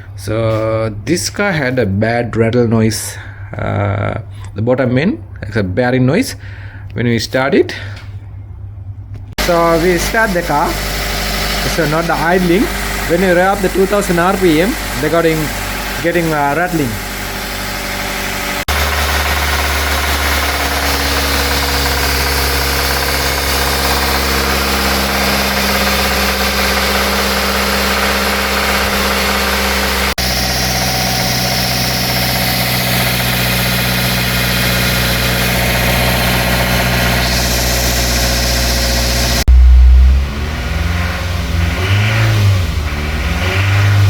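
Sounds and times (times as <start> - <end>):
car engine running: 9.3 - 44.0
engine rattle: 9.4 - 44.0.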